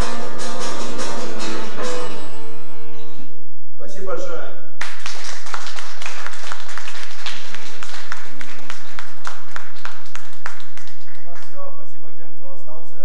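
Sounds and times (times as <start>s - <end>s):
audience clapping: 4.8s - 11.7s.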